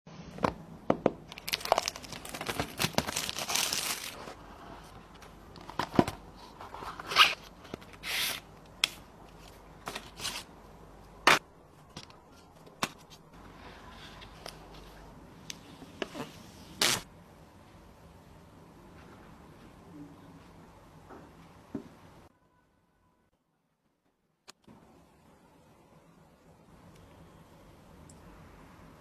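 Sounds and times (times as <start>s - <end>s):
plastic wrap tearing and crinkling: 1.3s - 4.4s.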